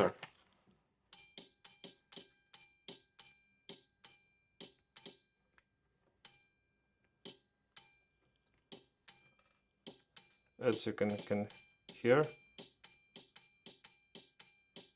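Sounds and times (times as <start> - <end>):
solenoid valve and relay clicks: 1.1 - 6.4, 7.0 - 14.9.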